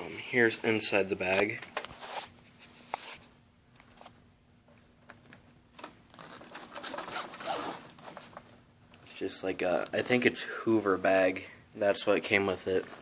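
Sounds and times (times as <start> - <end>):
zip opening: 6.2 - 7.9.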